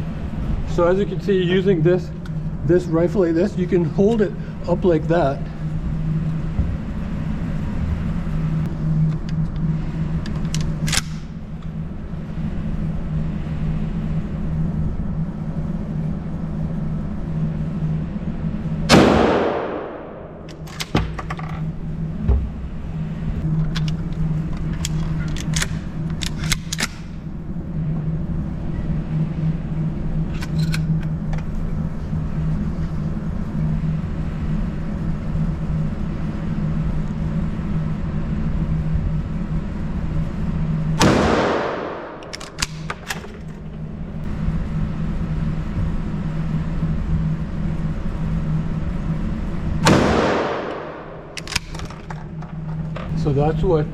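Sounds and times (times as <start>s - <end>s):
steady low hum: 0.0s - 53.9s
loud shotgun shot echoing: 18.9s - 20.4s, 41.0s - 42.3s, 49.8s - 51.3s
sharp clicks and knocks: 20.4s - 22.6s, 23.6s - 27.2s, 42.0s - 43.9s, 50.7s - 53.2s.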